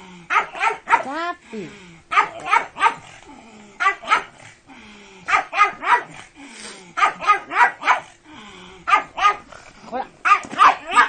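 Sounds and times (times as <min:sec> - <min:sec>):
dog barking: 0:00.3 - 0:01.2, 0:02.1 - 0:03.1, 0:03.8 - 0:04.4, 0:05.3 - 0:06.2, 0:07.0 - 0:08.1, 0:08.9 - 0:09.5, 0:10.2 - 0:11.0.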